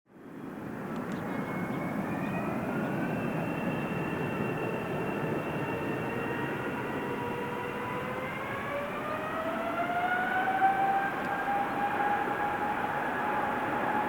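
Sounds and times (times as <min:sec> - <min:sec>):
jet engines spooling up: 0:00.6 - 0:14.0.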